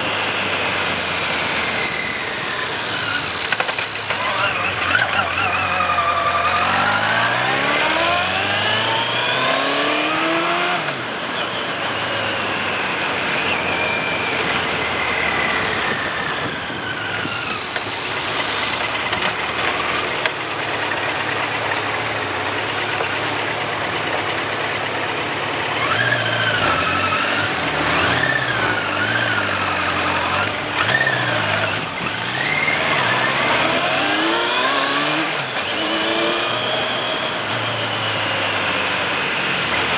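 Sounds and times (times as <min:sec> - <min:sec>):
motorcycle engine revving: 0:00.0 - 0:39.9
wind rushing over microphone: 0:15.6 - 0:17.7.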